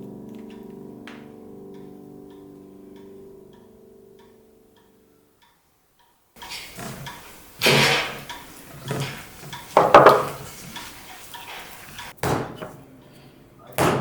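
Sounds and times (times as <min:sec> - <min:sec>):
utensils clattering against dishes: 0:06.4 - 0:12.2.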